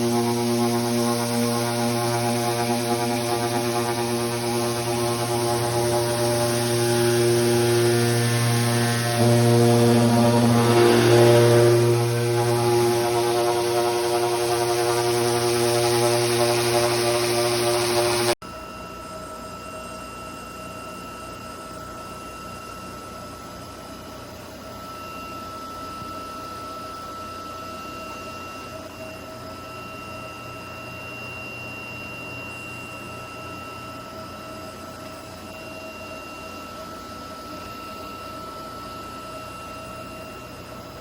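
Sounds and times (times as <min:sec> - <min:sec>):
router spindle whining: 0:00.0 - 0:18.4.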